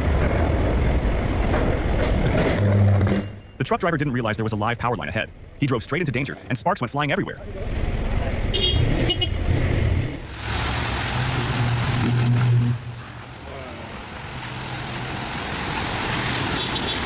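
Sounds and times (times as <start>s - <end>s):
electrical arcing crackle: 10.2s - 13.3s.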